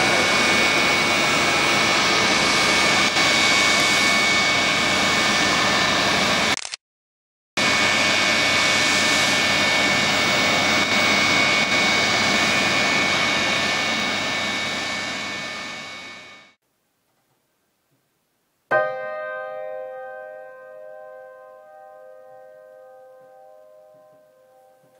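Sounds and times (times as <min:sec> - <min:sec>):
jet engines whining: 0:00.0 - 0:06.6, 0:07.6 - 0:16.6.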